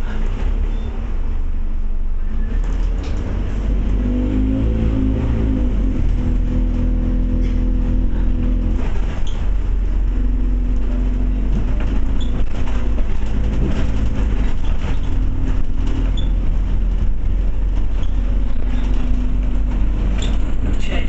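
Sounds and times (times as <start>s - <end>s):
bus engine running: 0.0s - 21.0s
road noise: 0.0s - 21.0s.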